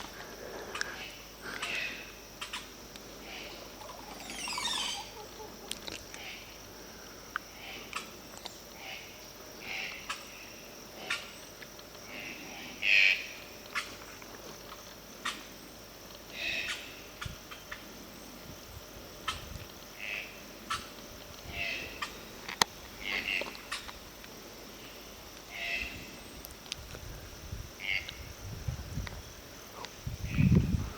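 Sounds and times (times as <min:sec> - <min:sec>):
high-pitched hiss: 0:00.0 - 0:30.9
bird singing: 0:03.4 - 0:06.4.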